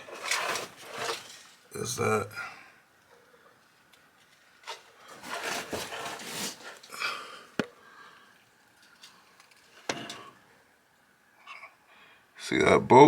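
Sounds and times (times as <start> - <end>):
rustling handling noise: 0.0 - 1.8, 3.6 - 7.8.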